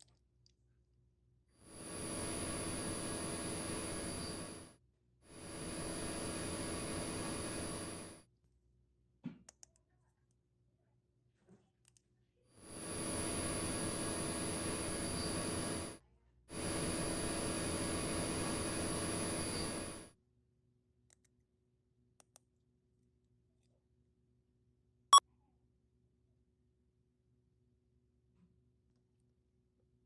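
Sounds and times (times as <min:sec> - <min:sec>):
hissing buzz with high whine: 0:01.7 - 0:04.7, 0:05.3 - 0:08.2, 0:12.7 - 0:20.1.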